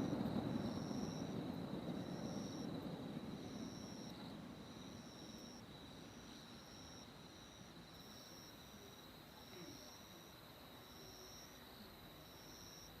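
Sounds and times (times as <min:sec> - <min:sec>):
firework burst rumble: 0:00.0 - 0:04.0
insects trilling: 0:00.0 - 0:13.0.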